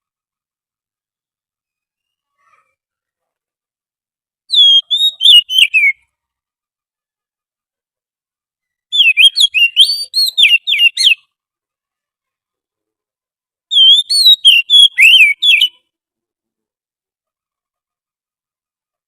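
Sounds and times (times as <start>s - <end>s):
bird whistling song: 4.5s - 6.1s, 8.7s - 11.3s, 13.7s - 15.8s.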